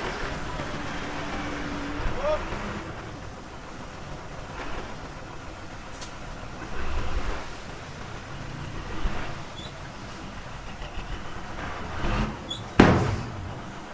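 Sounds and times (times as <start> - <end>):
heavy diesel machinery rumbling: 0.0 - 13.9
short thump: 12.6 - 13.8.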